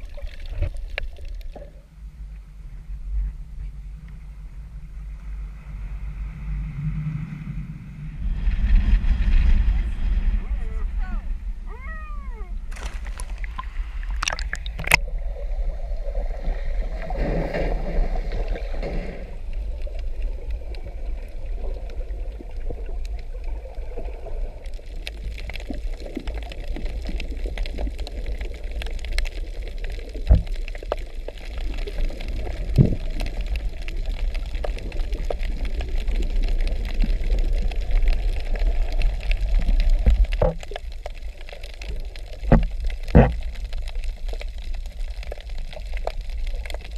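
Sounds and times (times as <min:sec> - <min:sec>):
water gurgling and splashing: 0:00.0 - 0:01.8, 0:07.3 - 0:46.9
steady low rumble: 0:00.0 - 0:41.4
small knocks and clicks: 0:42.4 - 0:43.5.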